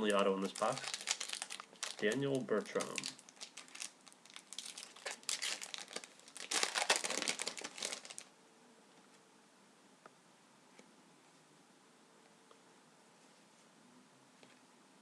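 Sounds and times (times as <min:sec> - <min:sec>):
card pack wrapper crinkling and tearing: 0:00.4 - 0:08.3.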